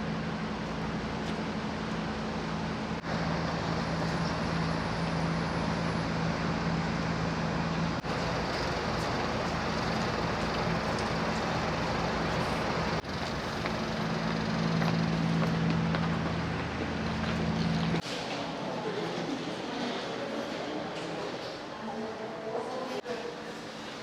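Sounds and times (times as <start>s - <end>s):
road traffic engine noise: 0.0s - 18.7s.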